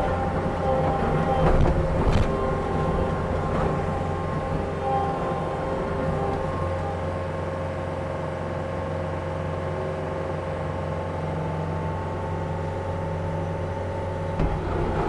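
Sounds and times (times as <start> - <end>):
steady whine: 0.0 - 7.2
diesel engine droning: 0.0 - 8.4, 9.5 - 15.0.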